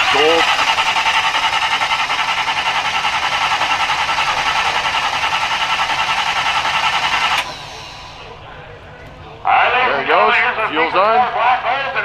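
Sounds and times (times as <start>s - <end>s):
engine starter cranking: 0.0s - 9.5s.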